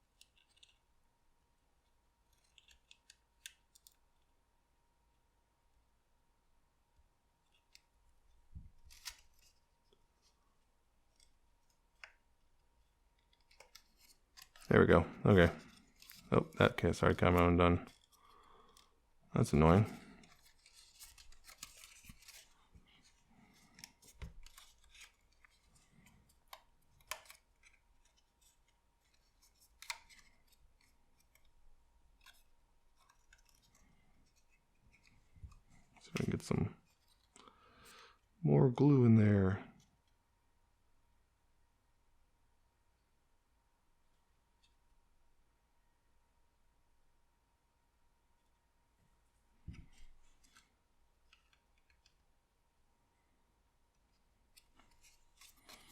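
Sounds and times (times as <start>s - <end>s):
paper crinkling and clicking: 0.1s - 0.8s, 2.3s - 4.0s, 8.7s - 10.4s, 13.1s - 18.9s, 19.7s - 37.4s, 54.0s - 55.9s
sharp clicks of paper card: 8.7s - 9.6s, 19.9s - 31.5s.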